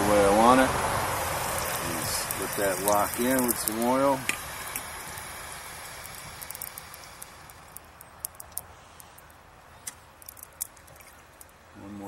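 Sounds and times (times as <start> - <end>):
oil sizzling on hot steel: 0.9 - 9.5
small pops and crackles: 1.4 - 11.6.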